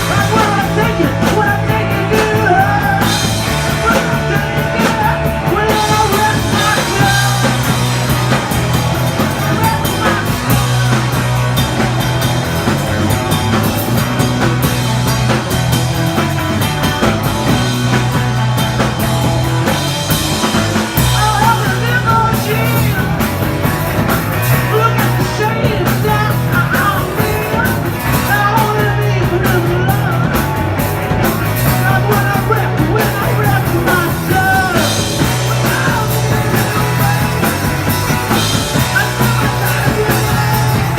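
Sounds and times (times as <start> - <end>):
person singing: 0.0 - 8.5, 9.2 - 11.4, 20.9 - 23.4, 24.4 - 30.6, 31.5 - 40.9
loud bass line: 0.0 - 40.9
punk rock band playing: 0.0 - 40.9.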